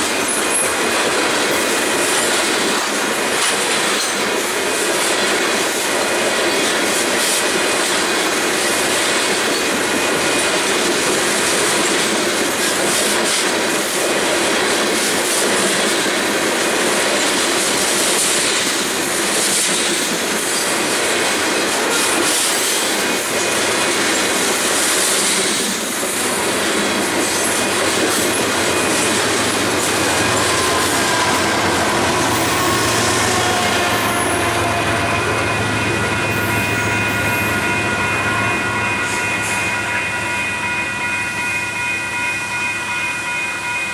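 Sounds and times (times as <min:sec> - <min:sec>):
train wheels squealing: 0:00.0 - 0:01.0, 0:27.2 - 0:40.1
train wheels rumbling on rail: 0:00.0 - 0:43.9.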